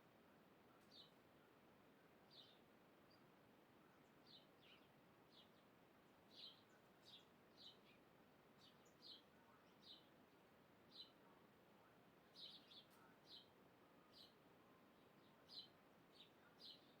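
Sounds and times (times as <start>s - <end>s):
soft background hiss: 0.0s - 17.0s
faint bird chirps: 6.3s - 17.0s.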